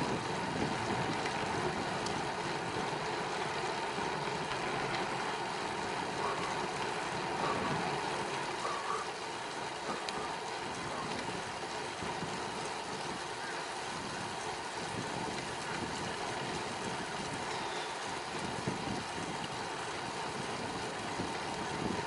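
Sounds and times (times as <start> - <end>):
wind on microphone: 0.0 - 2.8, 7.4 - 9.0, 18.3 - 19.6, 20.3 - 22.0
bicycle road noise: 0.0 - 22.0.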